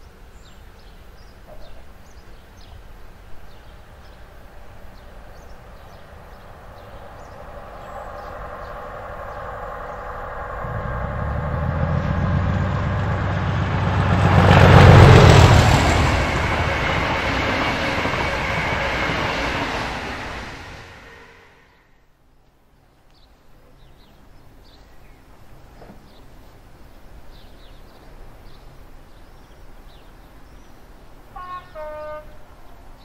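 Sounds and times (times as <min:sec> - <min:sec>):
train passing rumble: 0:02.9 - 0:22.1
low engine drone: 0:06.4 - 0:21.8.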